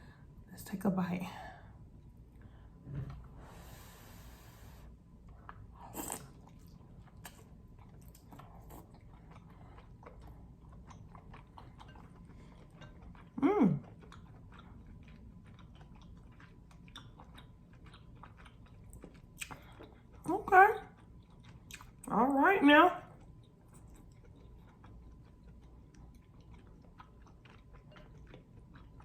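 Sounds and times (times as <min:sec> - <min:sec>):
person chewing wetly: 0:05.1 - 0:20.3, 0:20.9 - 0:22.1, 0:23.1 - 0:29.0
person humming mm: 0:13.4 - 0:13.8.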